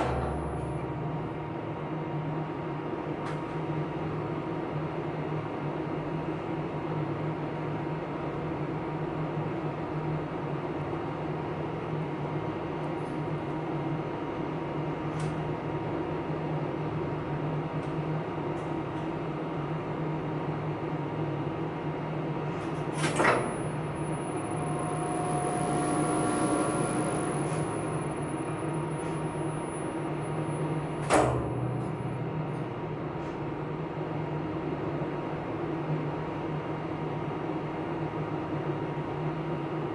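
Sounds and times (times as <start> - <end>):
elevator machinery humming: 0.0 - 4.5, 18.0 - 37.9
thin high whine: 23.2 - 33.4
sharp clunk: 31.0 - 32.0.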